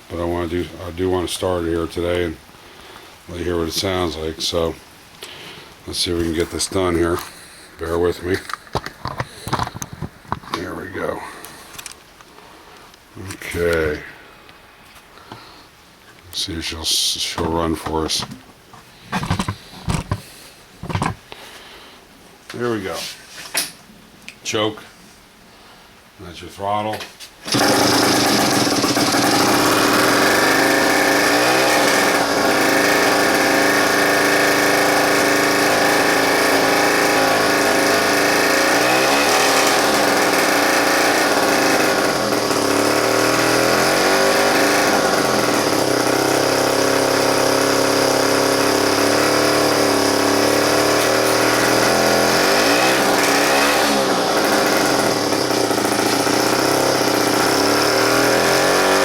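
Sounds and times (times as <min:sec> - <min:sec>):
small two-stroke engine running: 0:27.4 - 0:59.0.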